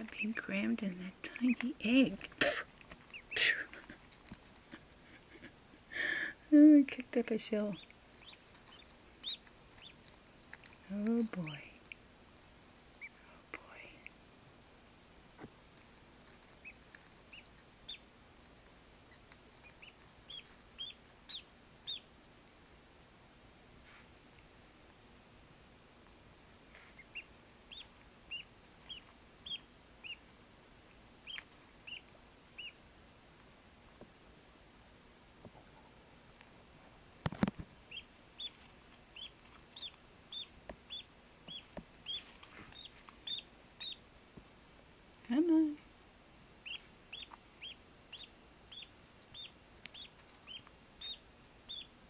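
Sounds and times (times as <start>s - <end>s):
duckling peeping: 0.0s - 5.4s, 7.3s - 11.7s, 13.0s - 13.2s, 16.0s - 18.1s, 19.0s - 22.1s, 26.9s - 30.3s, 31.2s - 32.8s, 37.8s - 44.1s, 46.6s - 52.0s.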